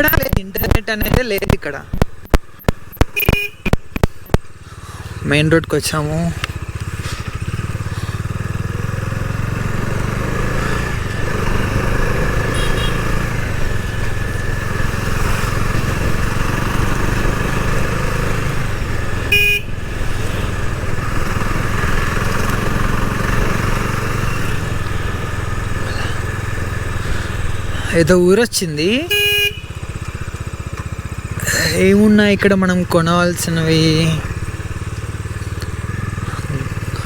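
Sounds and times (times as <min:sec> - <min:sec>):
motorcycle engine running: 0:00.0 - 0:37.0
vehicle horn blast: 0:03.1 - 0:03.8, 0:12.4 - 0:13.4, 0:19.1 - 0:19.9, 0:29.0 - 0:30.0.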